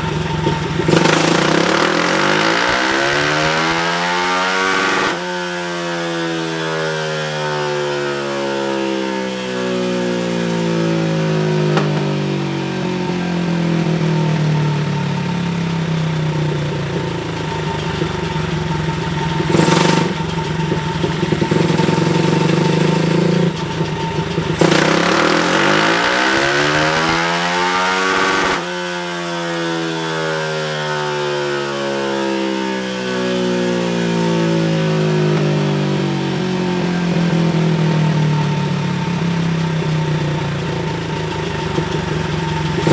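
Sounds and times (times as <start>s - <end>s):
motorcycle engine revving: 0.0s - 42.9s
sharp crack: 11.7s - 12.5s, 16.8s - 28.8s.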